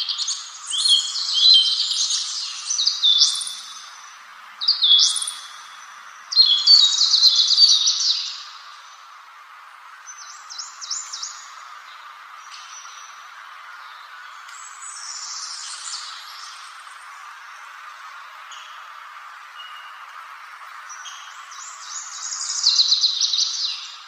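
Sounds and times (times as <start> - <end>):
songbird chirping: 0.0 - 9.3, 9.9 - 24.0
background hiss: 0.0 - 24.0.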